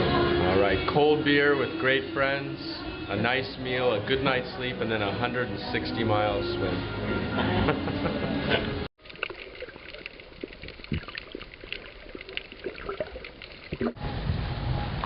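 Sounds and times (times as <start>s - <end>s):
water splashing and trickling: 9.0s - 14.0s.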